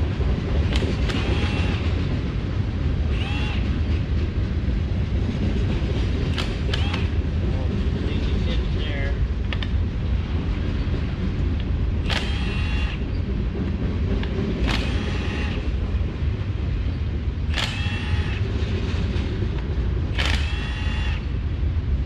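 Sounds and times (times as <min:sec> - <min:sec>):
slow train rumbling by: 0:00.0 - 0:22.0
power tool whirring: 0:00.7 - 0:02.0, 0:03.0 - 0:03.9, 0:06.3 - 0:07.2, 0:12.0 - 0:13.1, 0:14.6 - 0:15.8, 0:17.5 - 0:18.5, 0:20.1 - 0:21.3.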